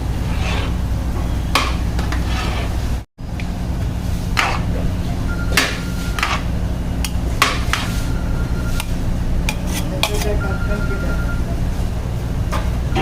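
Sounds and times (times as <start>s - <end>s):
steady low rumble: 2.7s - 13.0s.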